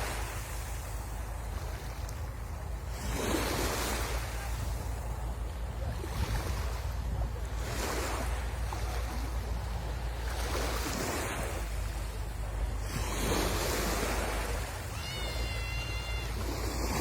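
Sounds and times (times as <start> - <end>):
sea waves washing onto shore: 0.0 - 17.0
wind rumbling on microphone: 0.0 - 17.0.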